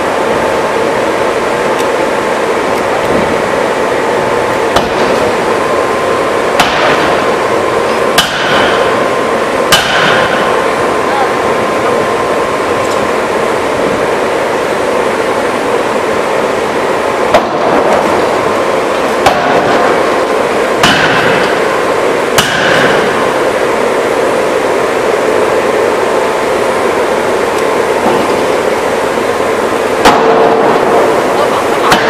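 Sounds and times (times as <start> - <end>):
loud machinery din: 0.0 - 32.0
forging hammer heavy blows: 6.5 - 7.3, 8.0 - 9.0, 9.7 - 10.6, 20.8 - 21.7, 22.4 - 23.3.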